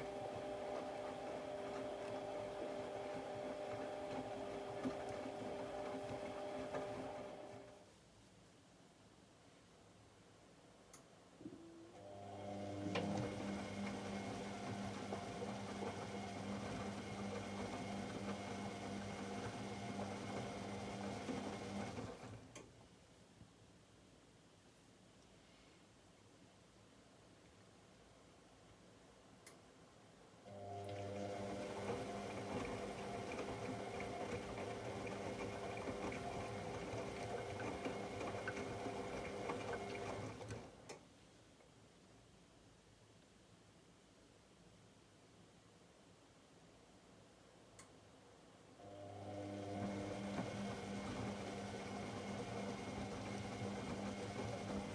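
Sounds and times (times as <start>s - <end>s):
washing machine running: 0.0s - 7.8s, 12.0s - 22.4s, 30.5s - 40.8s, 48.9s - 54.9s.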